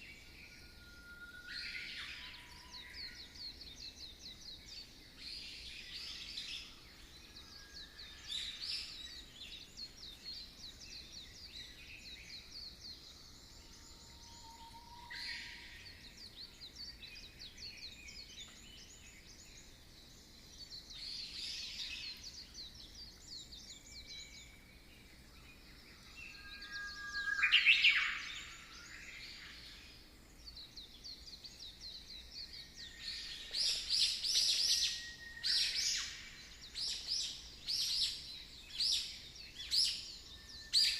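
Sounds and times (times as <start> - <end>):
birds chirping and trilling: 0.0 - 40.9.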